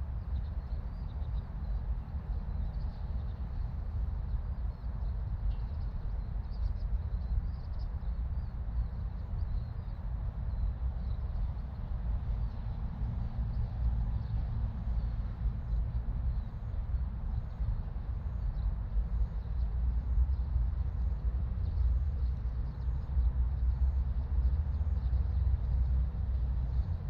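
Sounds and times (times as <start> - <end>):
steady low rumble: 0.0 - 27.0.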